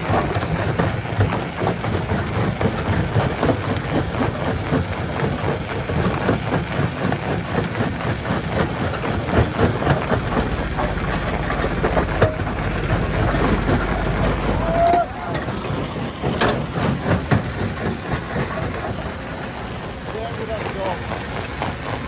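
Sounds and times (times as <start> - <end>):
knocks and clatters: 0.0 - 19.2
heavy engine running: 0.0 - 22.0
steady low hum: 7.5 - 17.2.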